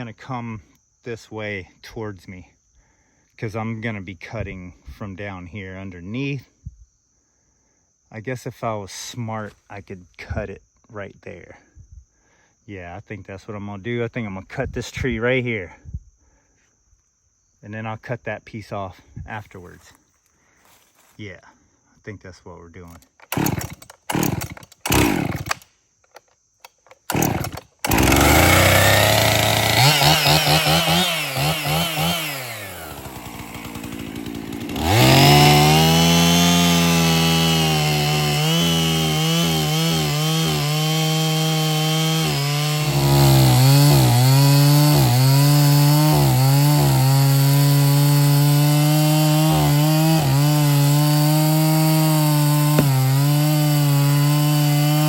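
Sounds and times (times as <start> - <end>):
chainsaw cutting a tree: 22.9 - 25.6, 26.6 - 55.0.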